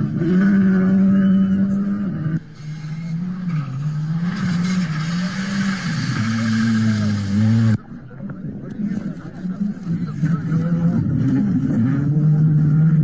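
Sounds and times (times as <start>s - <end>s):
rally car engines running hard: 0.0s - 13.0s
rising hiss: 4.2s - 7.8s.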